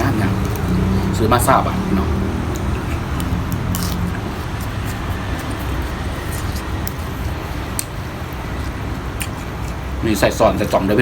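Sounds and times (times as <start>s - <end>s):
food crunching: 2.2s - 11.0s.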